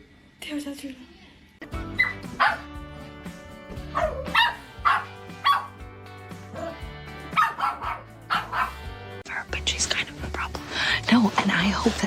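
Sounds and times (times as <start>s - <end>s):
background music: 1.6s - 12.0s
dog barking and yelping: 1.9s - 2.8s, 3.9s - 5.8s, 6.5s - 8.9s.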